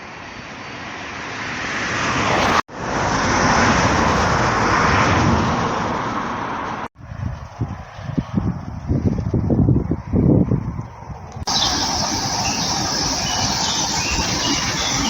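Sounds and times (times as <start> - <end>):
road traffic passing: 0.9 - 6.9, 11.5 - 15.0.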